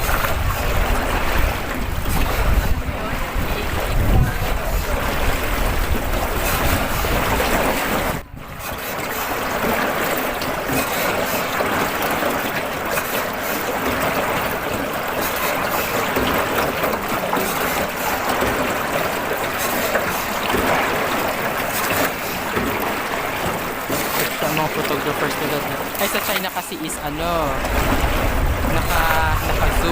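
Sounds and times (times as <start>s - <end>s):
wind buffeting microphone: 0.0s - 10.7s, 26.8s - 29.9s.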